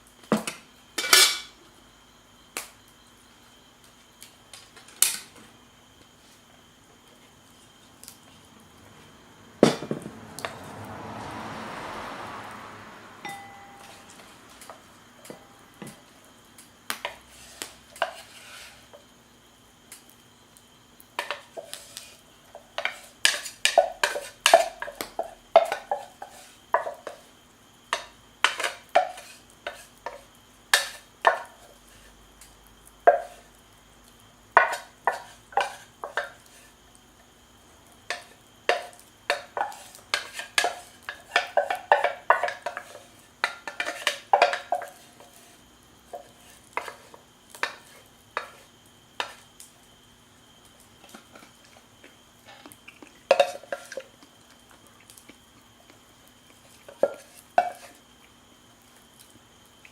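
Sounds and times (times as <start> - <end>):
utensil clinking against cookware: 13.3 - 14.1.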